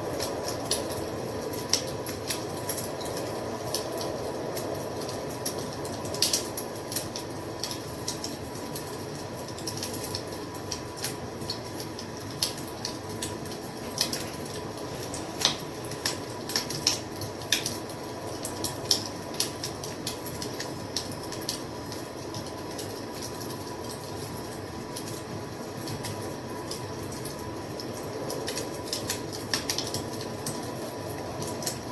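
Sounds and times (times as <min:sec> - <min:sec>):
rush of burning flames: 0:00.0 - 0:11.2, 0:13.2 - 0:20.2
wood fire crackling: 0:00.0 - 0:31.9.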